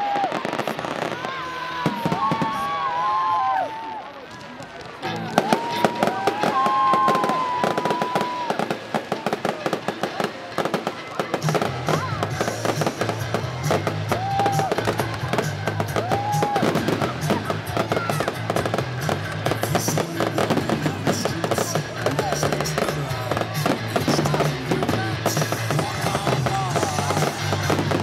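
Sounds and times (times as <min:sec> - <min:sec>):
fireworks crackling and banging: 0:00.0 - 0:28.0
electronic music with bass line: 0:11.4 - 0:28.0.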